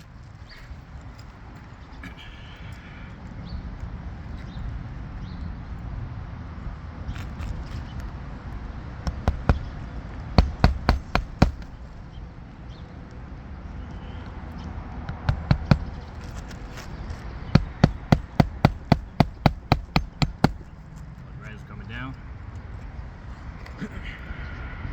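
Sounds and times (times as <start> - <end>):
hammer blows on shingle roof: 9.0 - 12.2, 15.0 - 16.8, 17.5 - 20.8.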